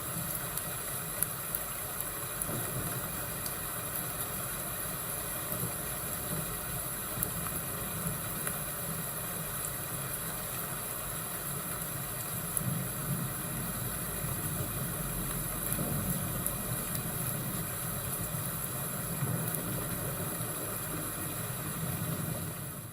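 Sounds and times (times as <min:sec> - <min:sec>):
fire crackles: 0:00.0 - 0:22.9
low rumble of thunder: 0:12.6 - 0:22.9.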